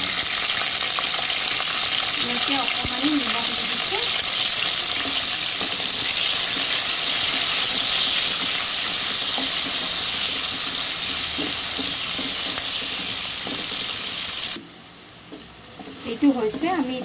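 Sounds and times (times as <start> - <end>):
vegetables sizzling in hot oil: 0.0 - 17.0
spatula stirring: 2.6 - 14.6.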